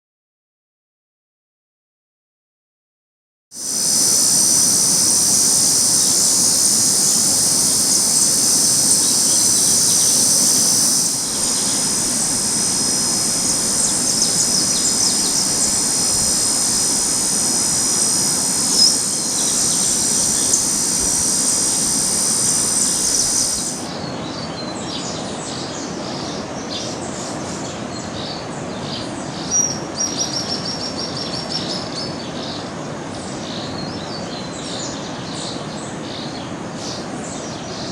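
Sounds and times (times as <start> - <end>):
birds chirping: 3.6 - 23.9
high-pitched insect drone: 3.6 - 23.9
soft outdoor hiss: 3.6 - 24.0.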